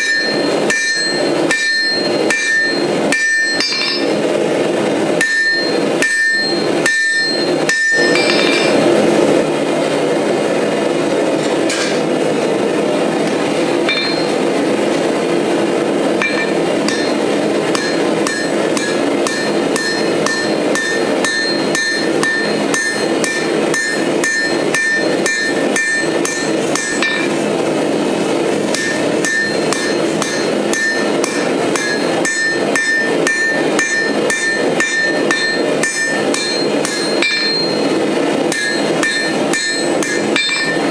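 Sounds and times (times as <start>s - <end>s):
hammer striking steel on anvil: 0.0s - 4.3s, 5.2s - 8.9s, 13.9s - 14.4s, 16.2s - 27.4s, 28.6s - 40.9s
steady rushing noise: 0.0s - 40.9s.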